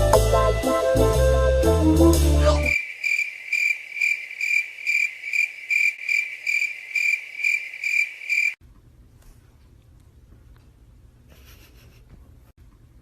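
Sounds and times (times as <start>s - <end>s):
cricket chirping: 2.7s - 8.6s.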